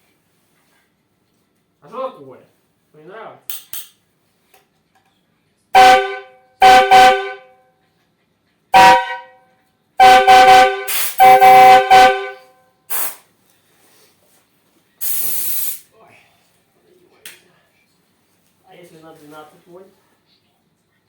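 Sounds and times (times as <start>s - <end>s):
truck air horn blasts: 5.8s - 7.6s, 8.8s - 9.4s, 10.0s - 12.6s
air hissing: 10.9s - 11.6s, 12.9s - 13.3s, 15.0s - 15.9s.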